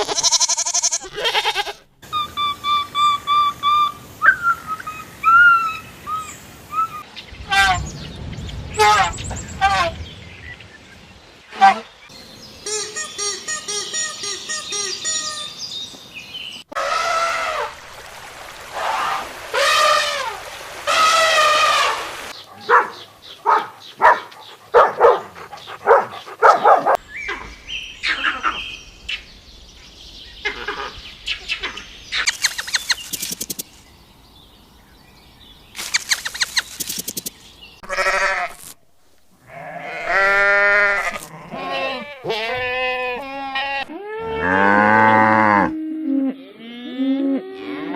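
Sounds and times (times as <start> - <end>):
goat bleating: 0.0 - 1.9, 37.8 - 38.6, 39.5 - 44.6
high-pitched animal cries: 0.0 - 3.8.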